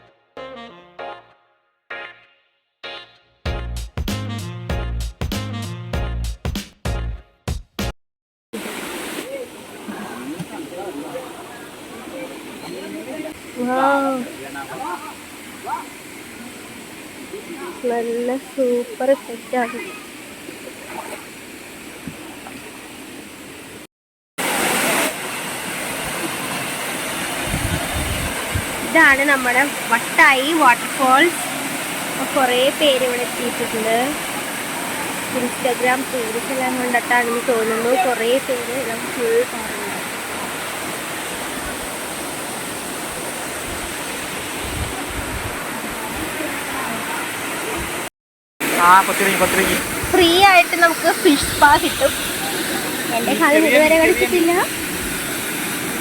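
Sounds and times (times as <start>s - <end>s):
waterfall rushing: 8.6s - 56.0s.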